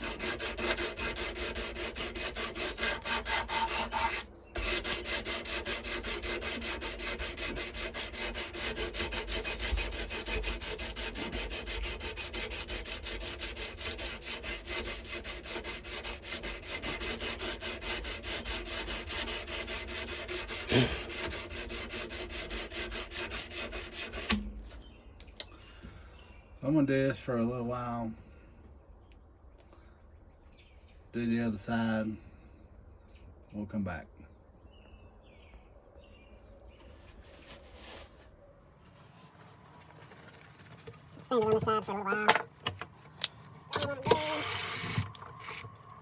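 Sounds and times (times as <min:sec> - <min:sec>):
sandpaper rubbing on steel blade: 0:00.0 - 0:24.4, 0:37.2 - 0:38.2.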